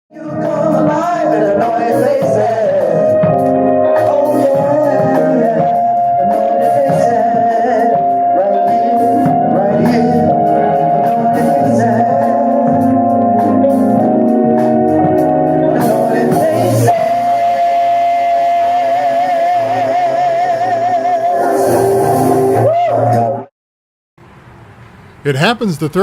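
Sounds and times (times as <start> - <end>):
gospel singing: 0.1 - 23.5
band with steady drum beat: 0.4 - 7.3.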